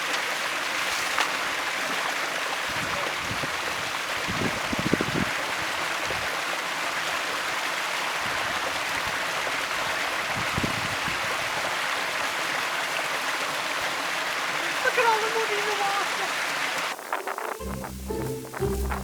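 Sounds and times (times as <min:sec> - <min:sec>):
rushing stream water: 0:00.0 - 0:19.0
low thumps: 0:17.6 - 0:19.0.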